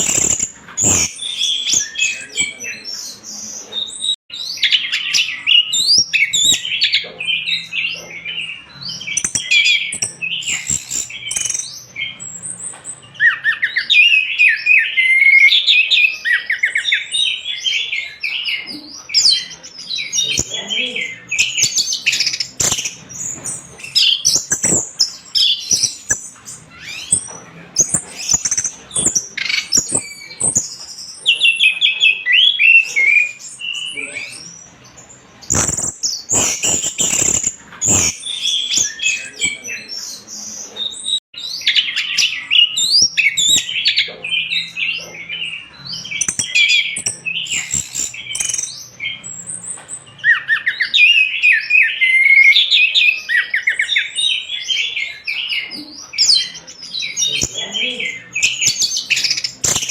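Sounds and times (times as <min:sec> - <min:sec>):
sharp clicks: 0:21.4 - 0:23.1, 0:35.5 - 0:39.6, 0:46.2 - 0:48.8, 0:58.4 - 0:59.9.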